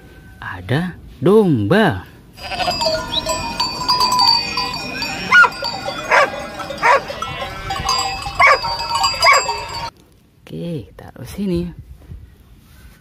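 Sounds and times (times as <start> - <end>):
flock calling: 2.4 - 9.9
sheep bleating: 2.4 - 9.9.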